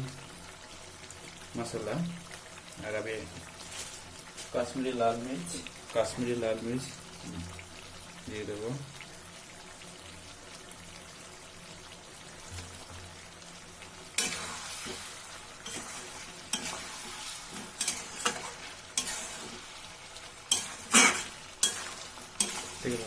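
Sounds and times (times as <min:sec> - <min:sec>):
chicken sizzling in a pan: 0:00.0 - 0:23.0
utensil scraping a pan: 0:14.2 - 0:19.8, 0:20.5 - 0:23.0.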